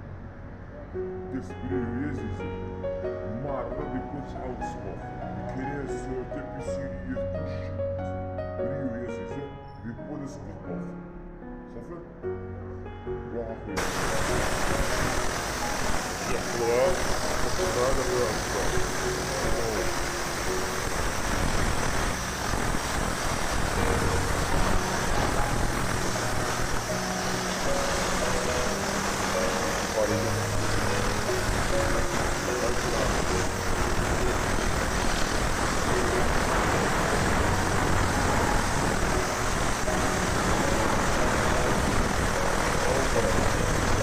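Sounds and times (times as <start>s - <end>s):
steam cleaner jet spraying: 13.8s - 44.0s.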